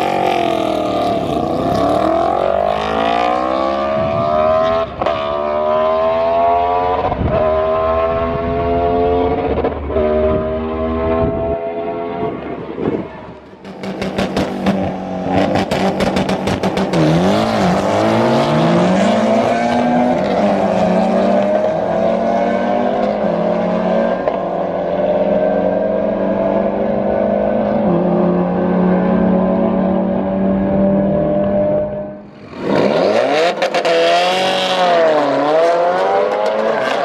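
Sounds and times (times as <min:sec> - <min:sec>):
race car engine: 0:00.0 - 0:37.0
engine popping and crackling: 0:13.4 - 0:17.6.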